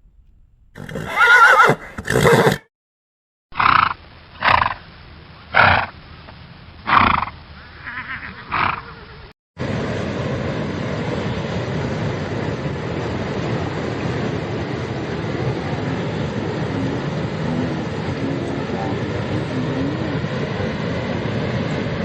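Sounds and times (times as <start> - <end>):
animal short calls: 0.8 - 2.6, 6.9 - 9.3
loud rushing noise: 9.6 - 22.0.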